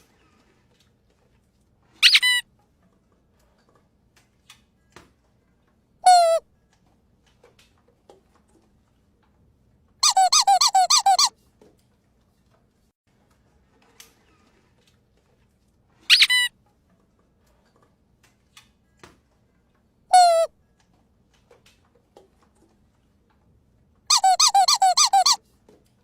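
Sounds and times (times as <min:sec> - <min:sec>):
squeaky dog toy squeaking: 0:02.0 - 0:02.4, 0:06.0 - 0:06.4, 0:10.0 - 0:11.3, 0:16.1 - 0:16.5, 0:20.1 - 0:20.5, 0:24.1 - 0:25.4.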